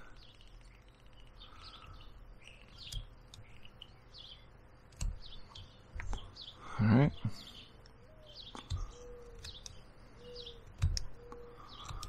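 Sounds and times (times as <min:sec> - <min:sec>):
small songbirds chirping: 0:00.0 - 0:12.0.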